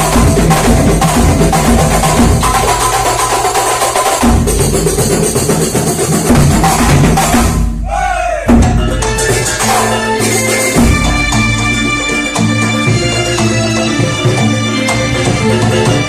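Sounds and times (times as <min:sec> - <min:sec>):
drums beating steady rhythm: 0:00.0 - 0:16.0
sustained pitched melody: 0:08.7 - 0:16.0.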